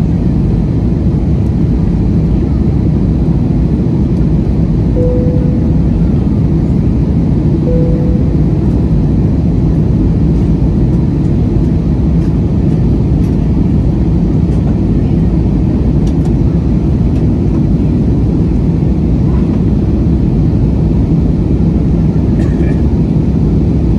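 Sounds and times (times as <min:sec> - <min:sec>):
jet engine roar in cabin: 0:00.0 - 0:23.9
faint tones: 0:05.0 - 0:06.8, 0:07.7 - 0:09.0.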